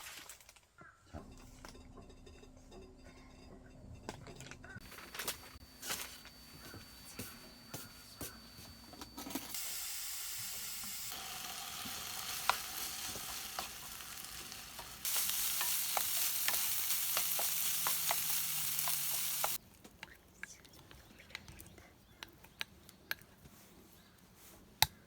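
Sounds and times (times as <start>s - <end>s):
food sizzling in a pan: 9.3s - 19.6s.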